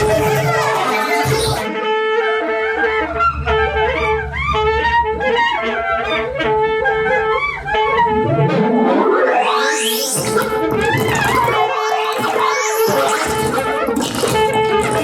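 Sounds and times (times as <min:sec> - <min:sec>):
rising electronic sweep: 0:08.1 - 0:10.2
pulsing electronic tone: 0:08.1 - 0:10.8.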